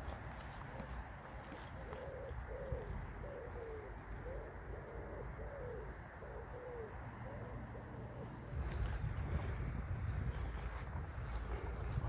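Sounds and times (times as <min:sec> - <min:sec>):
pigeon cooing: 0:01.7 - 0:07.5.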